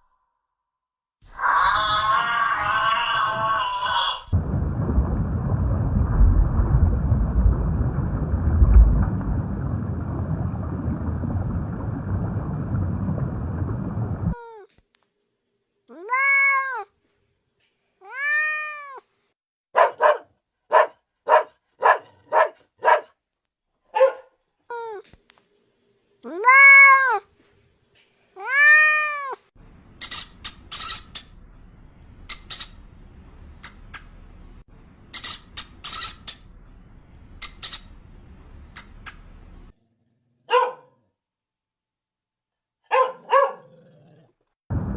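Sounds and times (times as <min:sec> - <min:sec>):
cat meowing: 0:01.4 - 0:04.3, 0:15.9 - 0:16.9, 0:18.0 - 0:19.1, 0:28.4 - 0:29.4
high squeaky sounds: 0:30.0 - 0:31.4, 0:32.2 - 0:32.9, 0:35.1 - 0:36.5, 0:37.4 - 0:38.0.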